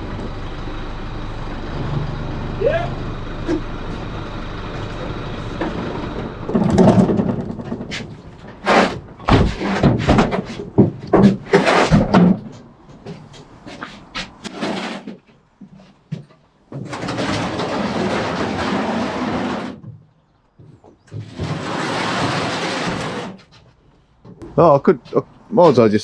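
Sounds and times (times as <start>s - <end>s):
truck engine running: 0.0s - 11.5s
metal tank clanking and knocking: 3.4s - 13.5s.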